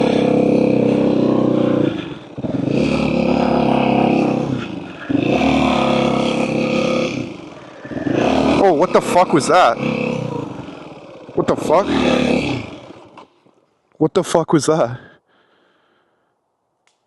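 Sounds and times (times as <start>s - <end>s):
motorcycle engine under load: 0.0s - 13.8s.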